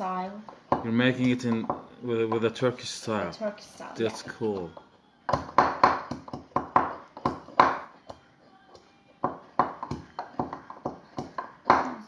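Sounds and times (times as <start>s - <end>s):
sharp knocks of garlic crushing: 0.5s - 2.5s, 5.3s - 8.2s, 9.2s - 12.0s.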